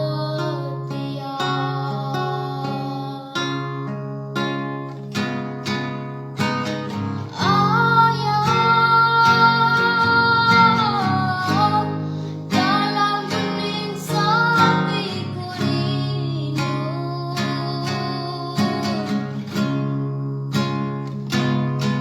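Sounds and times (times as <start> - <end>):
acoustic guitar plucked: 0.0 - 22.0
person singing long notes: 7.3 - 19.0.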